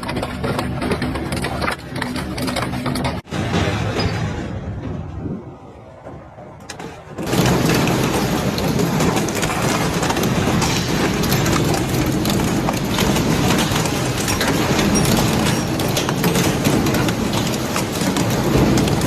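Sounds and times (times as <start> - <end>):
machine grinding: 0.0 - 5.2, 6.8 - 19.0
shredder crunching material: 7.2 - 19.0.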